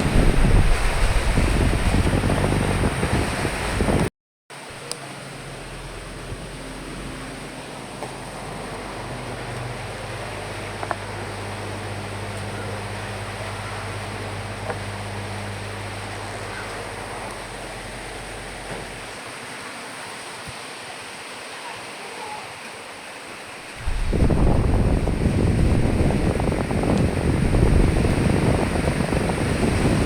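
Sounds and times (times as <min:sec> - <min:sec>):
rain and wind hiss: 0:00.0 - 0:04.0, 0:04.6 - 0:30.0
low steady hum: 0:04.8 - 0:19.2, 0:23.8 - 0:30.0.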